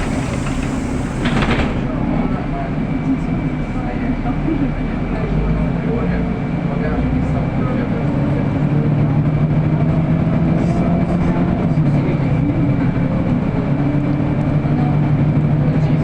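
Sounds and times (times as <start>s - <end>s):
cabin rattles: 0.0s - 2.0s
bus engine hum: 0.0s - 16.0s
road noise: 0.0s - 16.0s.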